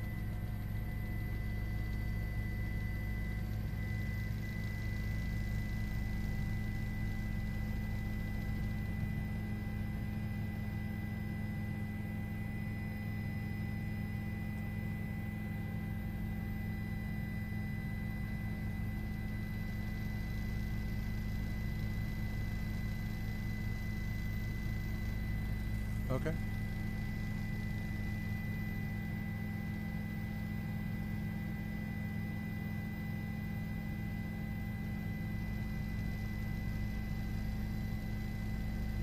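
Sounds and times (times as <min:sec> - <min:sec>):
helicopter drone from inside: 0:00.0 - 0:39.0
thin high whine: 0:17.4 - 0:39.0.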